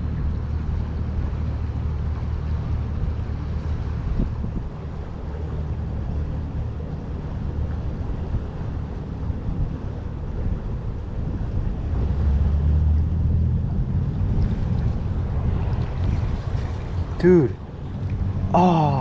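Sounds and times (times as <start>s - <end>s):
wind buffeting microphone: 0.0s - 18.6s.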